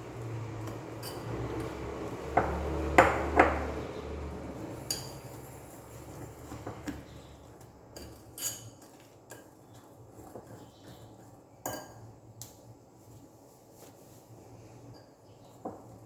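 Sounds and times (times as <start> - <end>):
utensil clinking and scraping bowl: 0.0 - 12.5.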